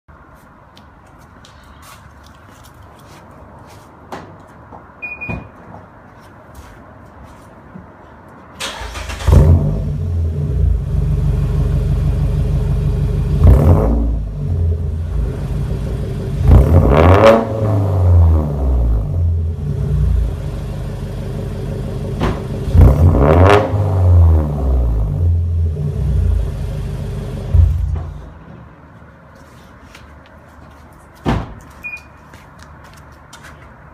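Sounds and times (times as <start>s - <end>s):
car engine idling and revving: 8.7s - 28.3s.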